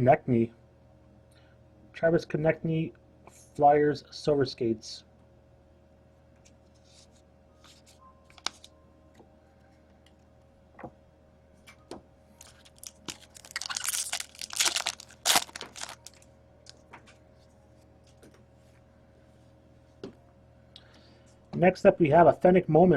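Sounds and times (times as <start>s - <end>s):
cards crinkling and rustling: 6.4s - 8.7s, 12.4s - 17.2s.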